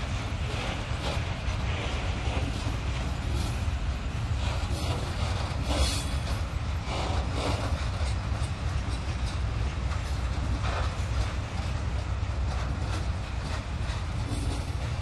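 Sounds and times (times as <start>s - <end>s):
freight train rumbling past: 0.0s - 15.0s
wheels clattering on rails: 0.0s - 15.0s.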